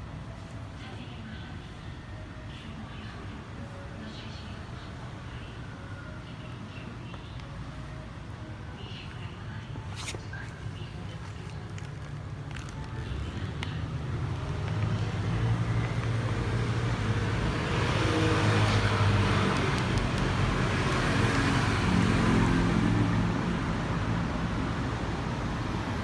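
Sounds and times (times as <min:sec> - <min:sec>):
road noise: 0:00.0 - 0:26.0
vehicle engine running: 0:10.8 - 0:23.9.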